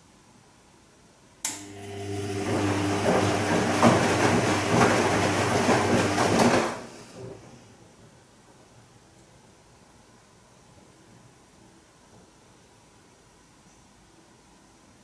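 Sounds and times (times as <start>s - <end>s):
washing machine drum turning: 1.5s - 7.5s.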